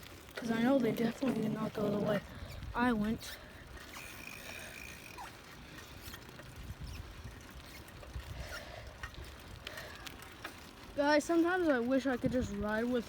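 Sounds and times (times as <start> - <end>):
light clicks and rattles: 0.2 - 13.0
wind rumble on microphone: 1.4 - 3.4, 6.0 - 9.8, 12.1 - 13.0.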